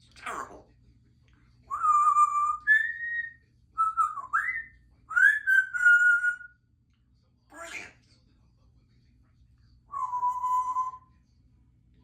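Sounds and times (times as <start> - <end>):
parrot whistling: 1.7 - 6.6, 9.9 - 11.1.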